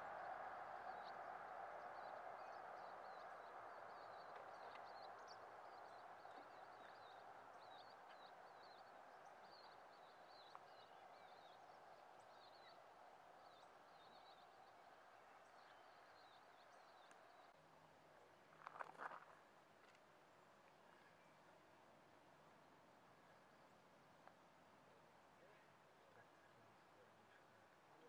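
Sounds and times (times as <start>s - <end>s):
soft steady rush: 0.0s - 17.6s.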